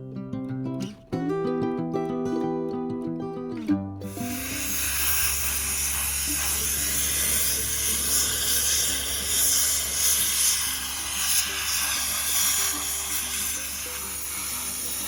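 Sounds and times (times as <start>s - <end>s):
background music with held notes: 0.0s - 4.6s
sandblaster hissing: 4.0s - 15.0s.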